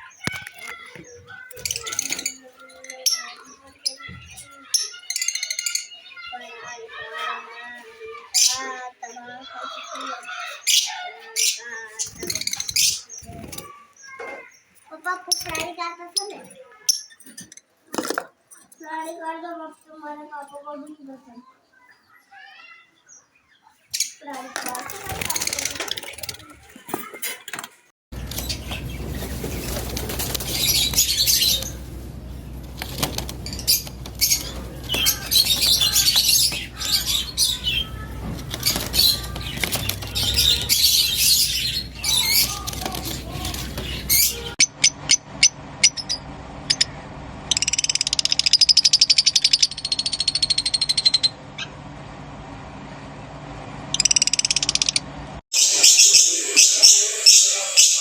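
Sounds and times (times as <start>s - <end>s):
dense buzzing chatter: 0.0s - 16.8s, 28.1s - 58.0s
lovebirds chattering and screeching: 0.0s - 27.5s, 28.2s - 51.8s, 53.8s - 58.0s
steady low hum: 28.1s - 57.9s.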